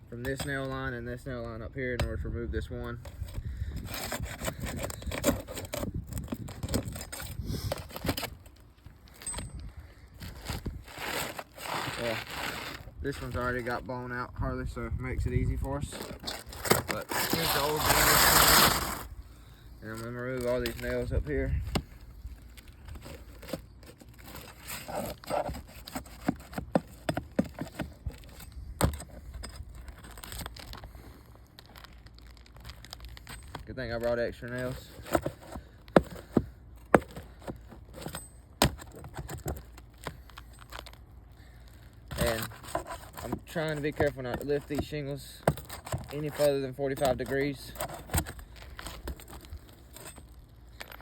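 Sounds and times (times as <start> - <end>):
tool scraping and clicking shingles: 0.1 - 14.2, 15.4 - 19.2, 19.8 - 51.0.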